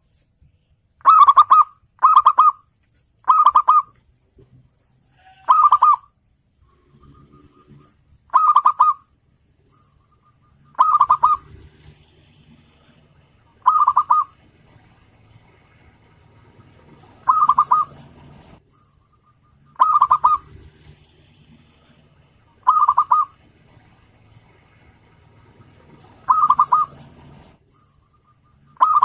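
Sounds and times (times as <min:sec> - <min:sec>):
dove cooing: 0:01.0 - 0:02.6, 0:03.2 - 0:04.0, 0:05.2 - 0:06.1, 0:06.8 - 0:09.1, 0:09.7 - 0:15.8, 0:16.4 - 0:23.9, 0:25.4 - 0:29.0.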